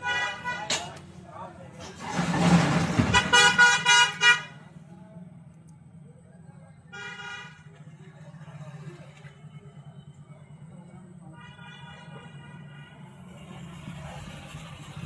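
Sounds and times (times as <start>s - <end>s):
vehicle horn tooting: 0.0s - 1.0s, 3.1s - 4.6s, 6.9s - 7.8s, 11.3s - 13.6s.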